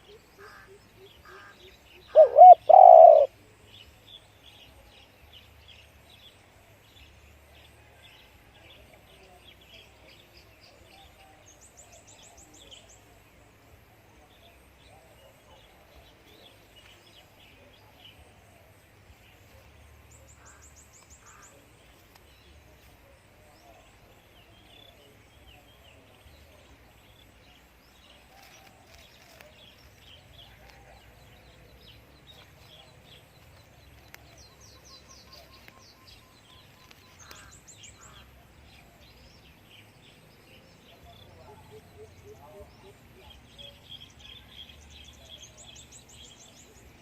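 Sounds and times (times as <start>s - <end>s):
small birds trilling: 0.0s - 3.3s, 26.7s - 47.0s
dove cooing: 2.1s - 3.3s.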